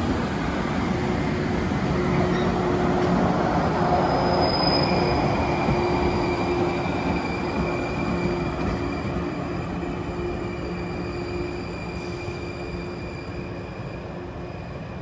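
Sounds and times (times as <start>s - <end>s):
electric train rumbling past: 0.0s - 15.0s
thin high squeal: 10.5s - 13.8s.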